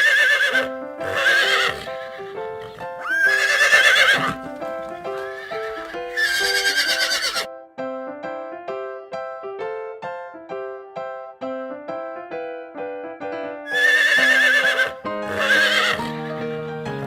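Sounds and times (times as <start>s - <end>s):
horse whinnying: 0.0s - 7.5s, 13.7s - 17.0s
light keyboard music: 0.0s - 17.0s.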